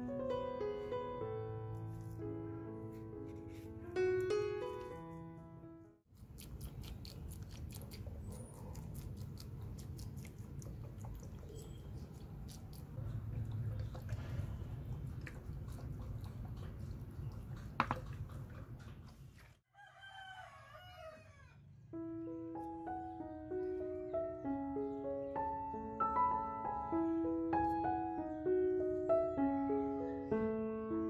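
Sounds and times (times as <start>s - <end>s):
piano music: 0.0s - 6.0s, 21.9s - 31.0s
rooster crowing: 19.7s - 21.7s.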